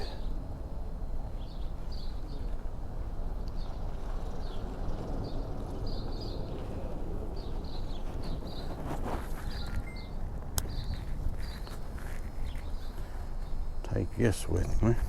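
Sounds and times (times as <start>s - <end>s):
low outdoor rumble: 0.0s - 15.0s
small bird chirping: 3.4s - 14.9s.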